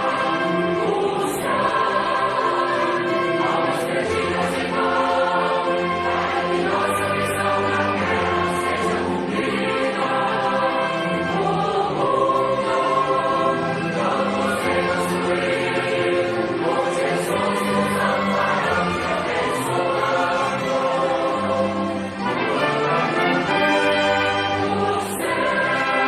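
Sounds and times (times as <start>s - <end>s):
choir singing a religious song: 0.0s - 26.0s.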